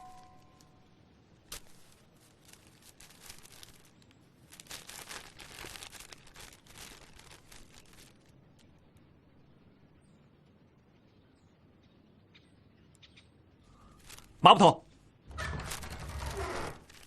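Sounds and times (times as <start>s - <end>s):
small clicks and rustles: 0.0s - 9.1s, 13.7s - 17.0s.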